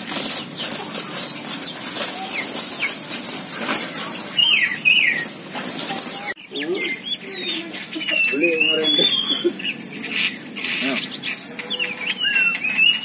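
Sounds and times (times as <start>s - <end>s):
wing flaps: 0.0s - 4.4s
birds whistling and chirping: 0.0s - 13.0s
rustling in foliage: 0.0s - 13.0s.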